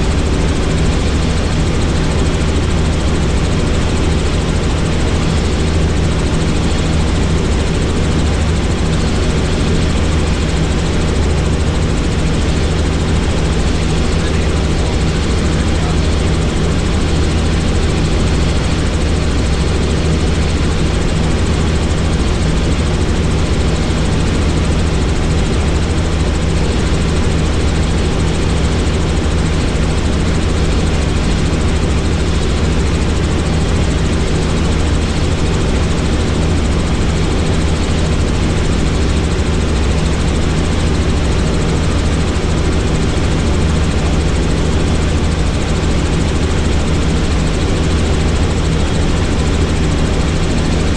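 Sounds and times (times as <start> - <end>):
helicopter engine and rotors drone: 0.0 - 50.9.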